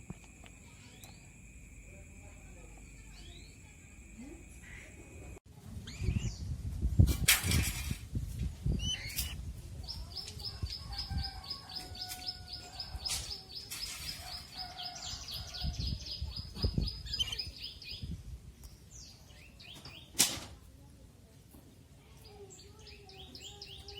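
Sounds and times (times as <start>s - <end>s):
bird chirping rapidly: 8.7s - 12.1s, 14.4s - 18.1s.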